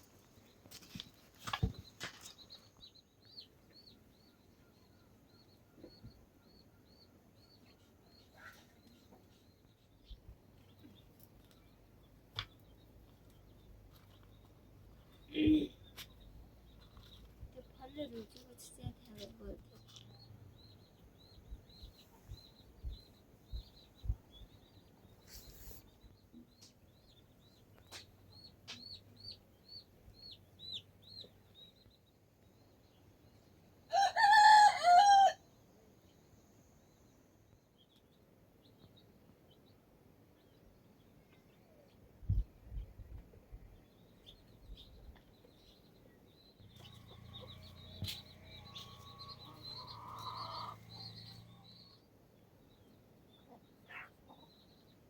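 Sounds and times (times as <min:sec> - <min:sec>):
small birds chirping: 0:00.0 - 0:35.3, 0:35.9 - 0:55.0
rooster crowing: 0:33.9 - 0:35.4.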